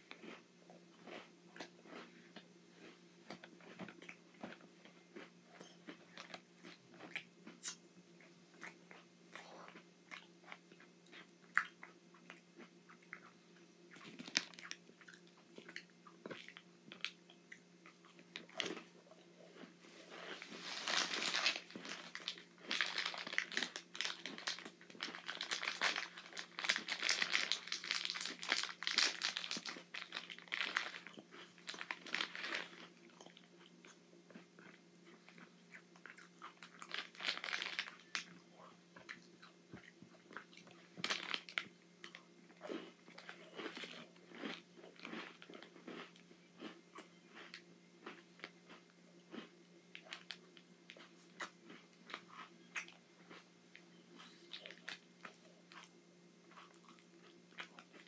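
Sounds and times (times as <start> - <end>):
cookies being chewed: 0.0 - 58.0
crisp crunches: 19.6 - 32.9, 36.5 - 38.4, 41.0 - 46.7
plastic wrapper crinkling: 20.4 - 32.8, 36.6 - 38.3, 41.0 - 41.7.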